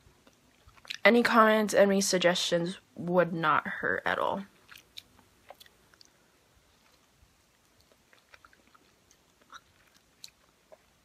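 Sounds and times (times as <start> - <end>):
person chewing: 0.2 - 1.0, 4.5 - 11.0.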